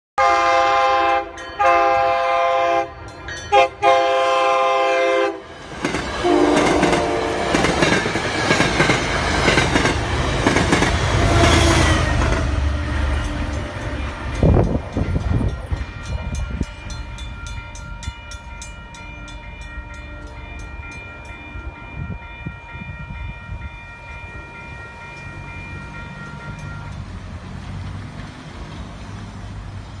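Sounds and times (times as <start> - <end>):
train horn: 0.2 - 5.5, 6.2 - 8.0, 11.1 - 14.8
train wheels rumbling on rails: 0.7 - 30.0.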